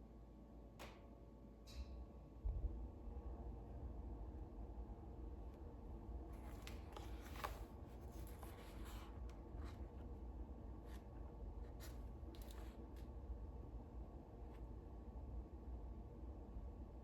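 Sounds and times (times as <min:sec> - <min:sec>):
faint low hum: 0:00.0 - 0:17.0
book pages rustling: 0:06.3 - 0:10.0, 0:10.8 - 0:13.1.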